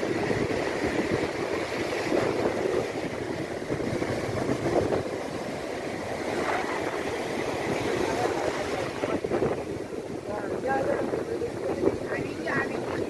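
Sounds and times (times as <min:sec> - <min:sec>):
waves washing on shore: 0:00.0 - 0:13.0
wind buffeting microphone: 0:00.0 - 0:13.0.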